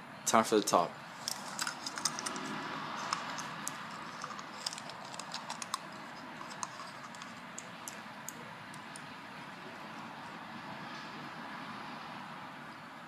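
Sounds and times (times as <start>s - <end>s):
steady background hiss: 0.0s - 13.0s
light clicks and crinkles: 1.2s - 9.1s.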